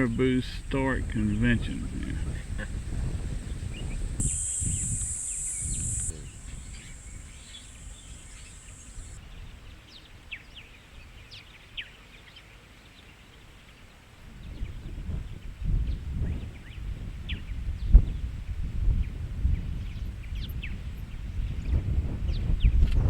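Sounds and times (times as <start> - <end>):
short bird chirps: 3.7 - 9.2.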